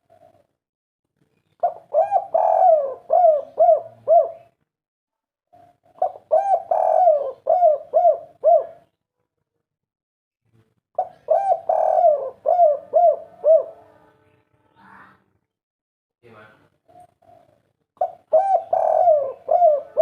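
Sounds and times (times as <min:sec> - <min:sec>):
dove cooing: 0:00.0 - 0:00.5, 0:01.6 - 0:04.6, 0:05.5 - 0:08.9, 0:11.0 - 0:14.0, 0:16.8 - 0:20.0.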